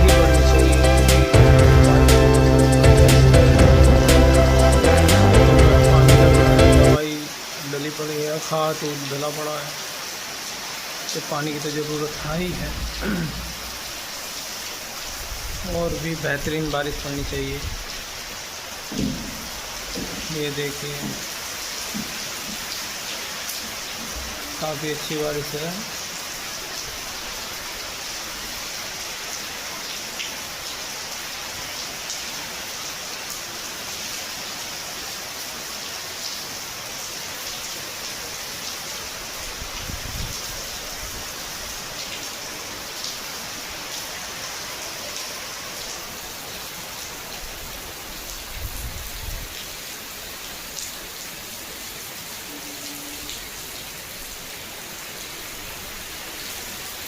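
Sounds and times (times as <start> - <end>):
heavy rain falling: 0.0 - 57.0
raindrop ticks: 18.9 - 22.8.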